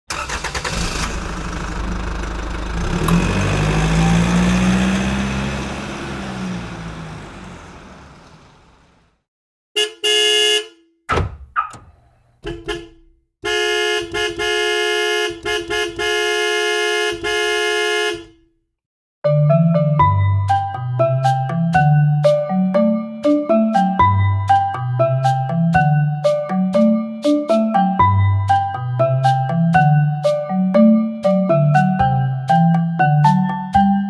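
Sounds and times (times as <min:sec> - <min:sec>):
engine-like rush: 0:00.1 - 0:09.2
horn blasts and toots: 0:09.8 - 0:10.9, 0:12.4 - 0:18.5.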